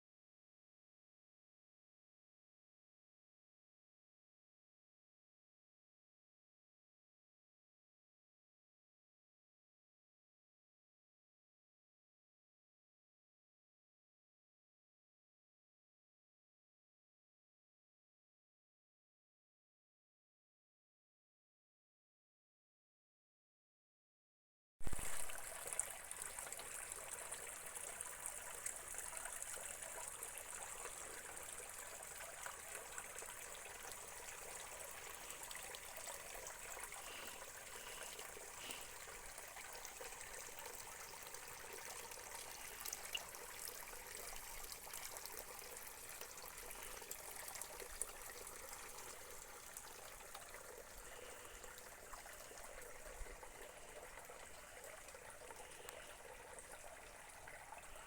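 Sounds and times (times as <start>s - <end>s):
water trickling over rocks: 24.8s - 58.0s.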